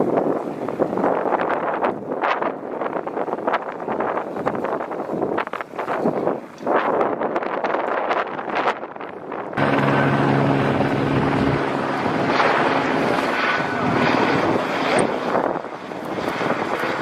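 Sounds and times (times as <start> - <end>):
wind gusting on microphone: 0.0 - 17.0
aircraft engine drone: 8.0 - 17.0.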